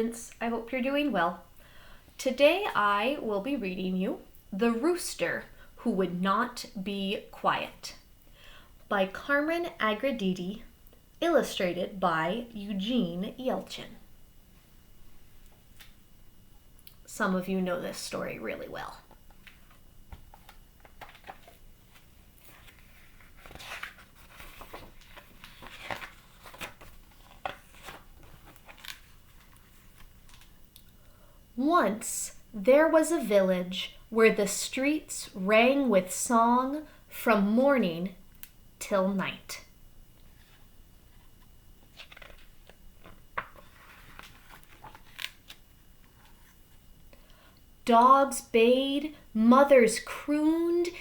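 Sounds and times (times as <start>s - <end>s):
paper rustling: 19.4s - 30.5s, 41.9s - 46.6s.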